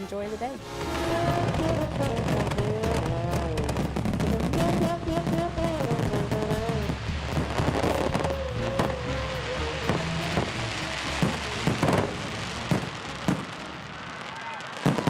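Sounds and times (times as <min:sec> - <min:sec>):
fireworks crackling pops: 0:00.6 - 0:15.0.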